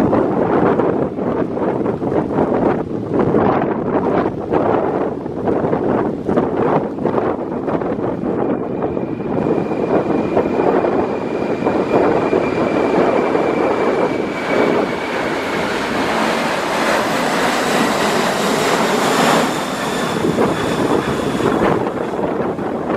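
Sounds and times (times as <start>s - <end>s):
jet engines roaring: 0.0s - 22.9s
wind buffeting microphone: 0.0s - 22.9s
high engine whines: 7.8s - 22.9s.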